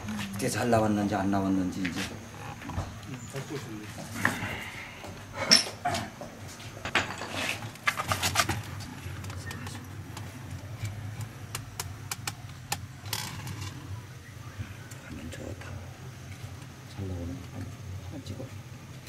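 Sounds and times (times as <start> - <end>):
pottery knocking and clinking: 5.4 - 6.2.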